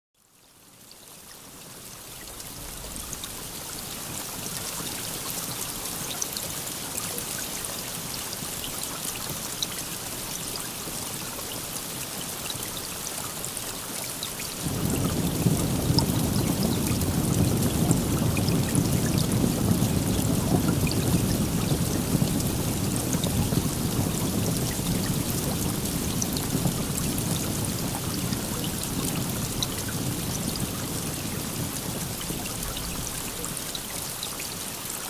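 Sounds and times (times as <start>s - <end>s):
steady rain: 0.2s - 35.0s
low rumble of thunder: 2.2s - 5.2s, 14.6s - 34.2s.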